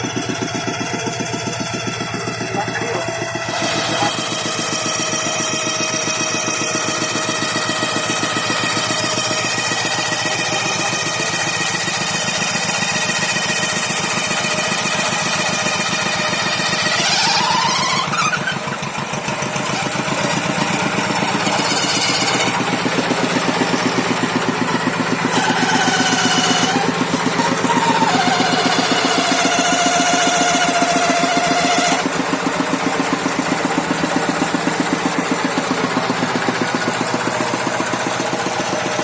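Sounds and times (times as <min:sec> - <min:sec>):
whine shifting in pitch: 0:00.0 - 0:11.3
tractor engine knocking: 0:00.0 - 0:39.0.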